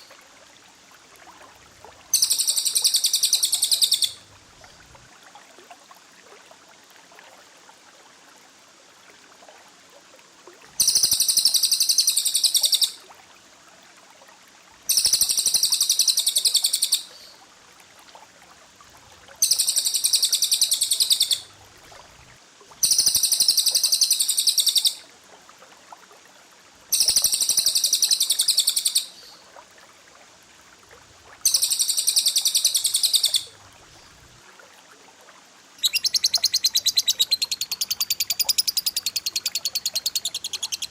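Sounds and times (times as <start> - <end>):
faint hiss: 0.0 - 40.9
rapid-fire bird song: 35.8 - 40.9.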